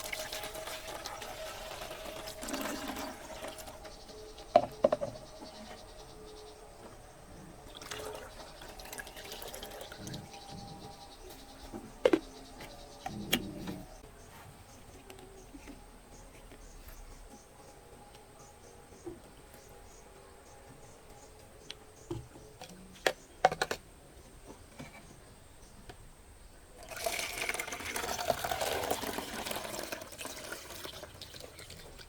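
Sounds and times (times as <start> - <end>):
liquid pouring into container: 0.0 - 3.9, 7.7 - 10.5, 26.8 - 32.0.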